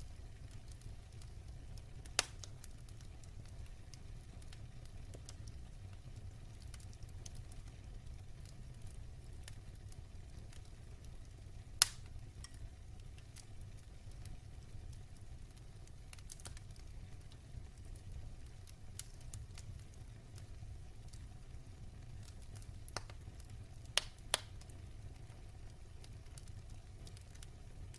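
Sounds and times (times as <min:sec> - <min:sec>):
faint crackles: 0:00.0 - 0:27.9
fire burning rumble: 0:00.0 - 0:27.9
loud pop from fire: 0:02.1 - 0:02.5, 0:11.8 - 0:12.6, 0:24.0 - 0:24.7.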